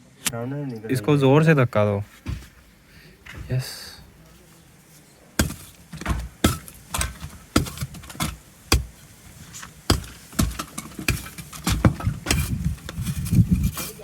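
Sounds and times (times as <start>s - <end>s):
door being battered: 2.2s - 2.6s, 3.2s - 4.1s, 5.4s - 9.0s.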